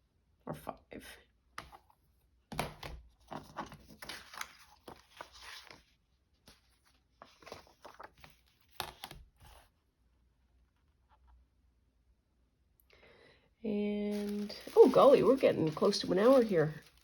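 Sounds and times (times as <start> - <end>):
paper rustling and scraping: 3.2 - 9.7, 14.1 - 17.0.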